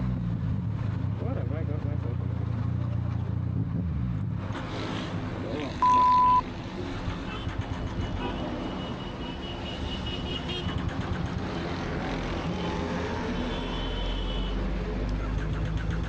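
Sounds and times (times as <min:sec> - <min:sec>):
wind and road noise: 0:00.0 - 0:16.0.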